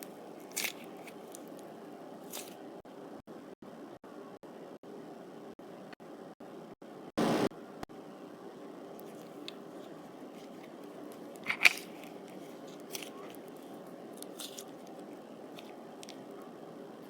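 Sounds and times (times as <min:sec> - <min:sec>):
slime crackling and squishing: 0:00.0 - 0:02.6, 0:09.0 - 0:16.4.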